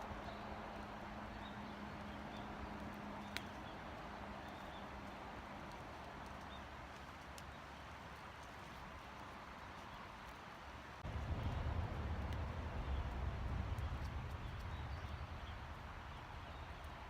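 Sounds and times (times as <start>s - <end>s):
fire crackle: 0.0s - 17.0s.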